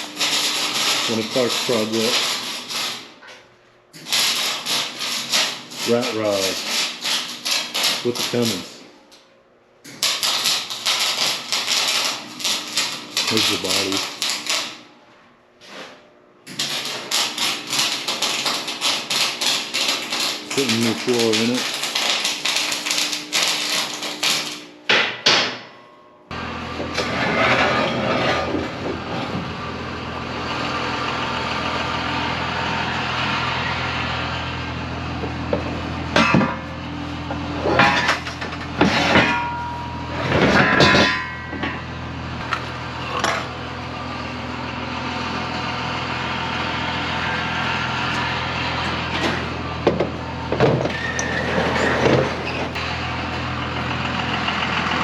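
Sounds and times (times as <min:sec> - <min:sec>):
metal clanks and knocks: 0:35.6 - 0:36.7, 0:37.6 - 0:43.5
engine idling: 0:52.8 - 0:55.0.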